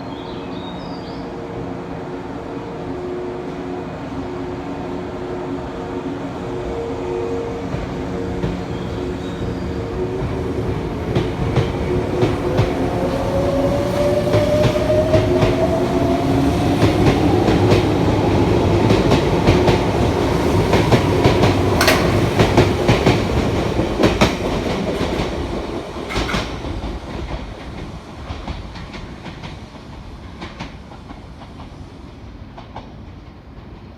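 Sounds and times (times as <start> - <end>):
wheels clicking over rail joints: 20.7 - 25.4, 26.0 - 27.4.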